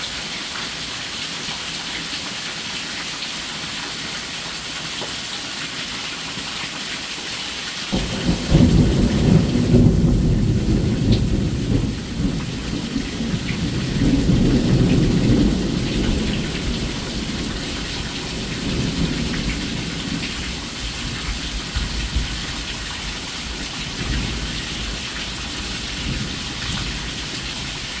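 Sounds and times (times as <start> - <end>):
heavy rain hissing: 0.0 - 28.0
thunder rumbling: 7.9 - 22.6.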